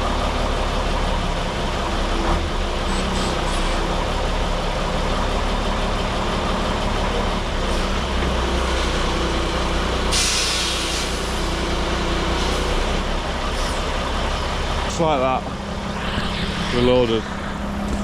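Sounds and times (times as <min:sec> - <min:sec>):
diesel engine running: 0:00.0 - 0:18.0
air-brake hiss: 0:10.1 - 0:11.6.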